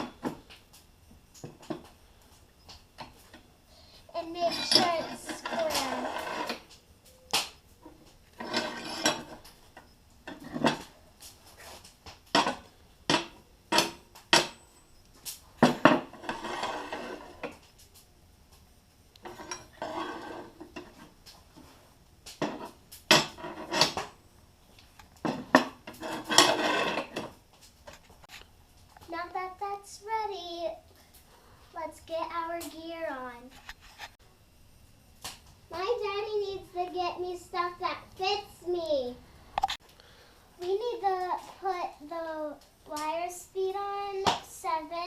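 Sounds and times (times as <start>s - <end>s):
metal scraping and rubbing: 4.2s - 6.7s, 7.9s - 9.5s, 15.7s - 17.6s, 19.2s - 21.8s, 22.4s - 24.2s, 25.3s - 27.3s
steel clanking against metal: 4.4s - 6.5s.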